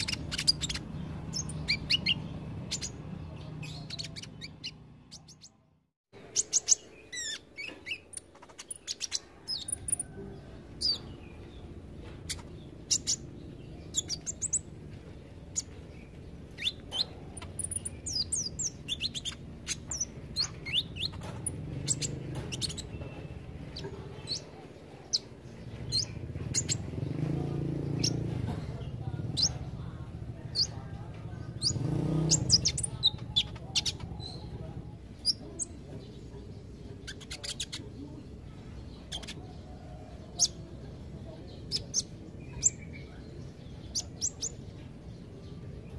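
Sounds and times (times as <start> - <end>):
bird chirping and whistling: 0.0 - 3.0, 16.5 - 22.9.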